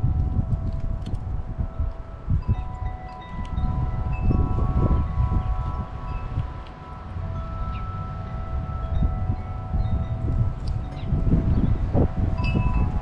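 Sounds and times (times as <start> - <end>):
wind buffeting microphone: 0.0 - 13.0
wind chimes ringing: 0.0 - 13.0.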